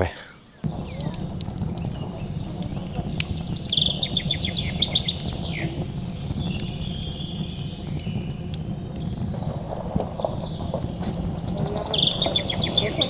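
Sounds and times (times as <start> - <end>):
songbird singing: 0.0 - 13.0
sharp clicks: 0.6 - 13.0
steady low rumble: 0.6 - 13.0.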